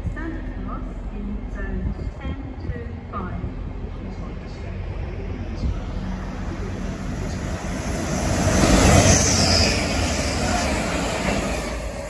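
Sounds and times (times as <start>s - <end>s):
diesel train passing: 2.9s - 12.0s.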